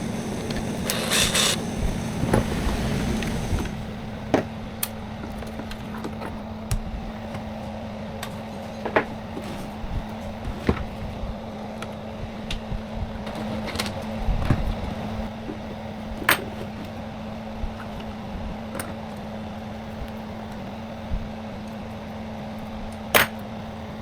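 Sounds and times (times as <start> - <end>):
steady hum: 0.0 - 4.4.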